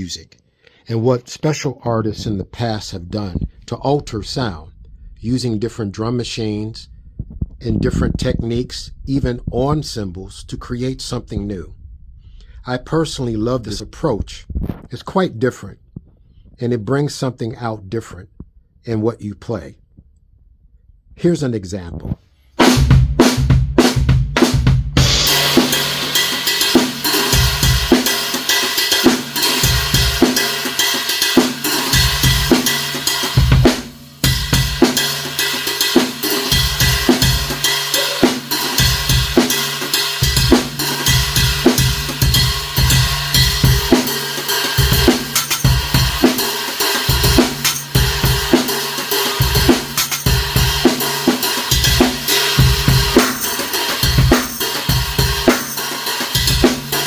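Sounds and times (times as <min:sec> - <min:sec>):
drum kit groove: 0:22.6 - 0:57.0
stacked cymbal ridden: 0:22.6 - 0:57.0.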